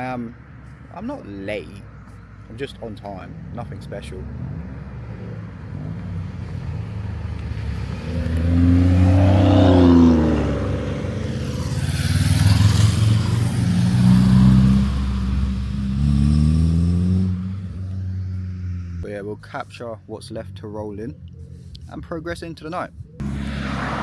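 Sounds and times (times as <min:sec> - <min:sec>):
cars revving past: 0:03.2 - 0:19.0, 0:23.2 - 0:24.0.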